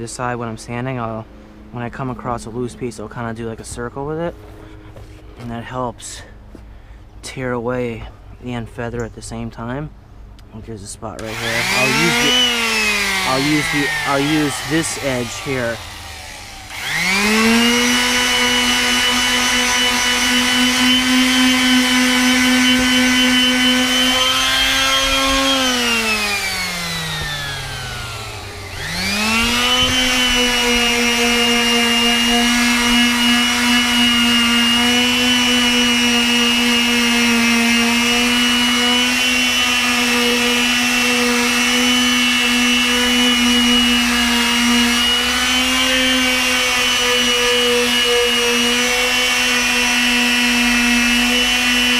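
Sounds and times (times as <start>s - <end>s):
palm sander sanding boards: 11.2s - 51.9s.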